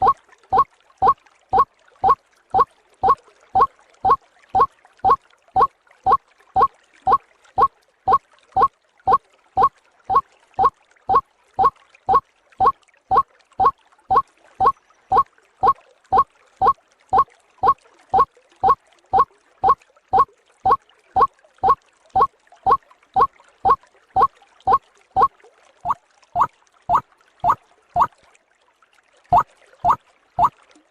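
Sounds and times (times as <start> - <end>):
waterhen calling: 0.0 - 1.2, 25.8 - 28.1, 29.3 - 30.5.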